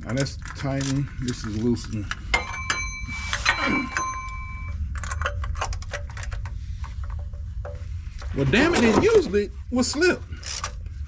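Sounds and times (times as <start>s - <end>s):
metal tools clicking and clinking: 0.0s - 6.5s
steady low rumble: 0.0s - 11.0s
ringing metallic ping: 2.3s - 4.8s.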